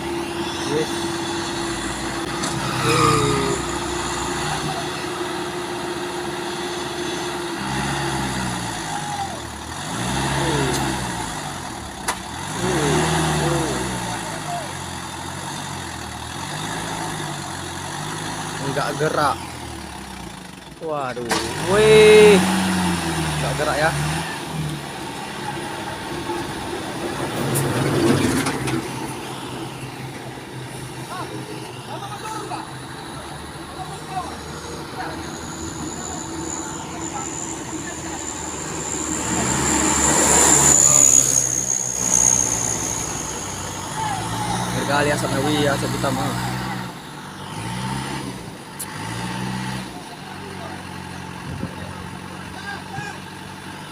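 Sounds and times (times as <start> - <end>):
truck diesel engine revving: 0.0 - 53.9.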